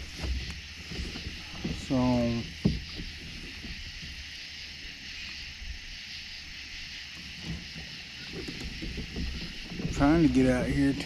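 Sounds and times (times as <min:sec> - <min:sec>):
small knocks: 0:00.0 - 0:04.4, 0:07.1 - 0:11.0
faint water and hull sounds: 0:00.0 - 0:11.0
steady high hiss: 0:00.0 - 0:11.0.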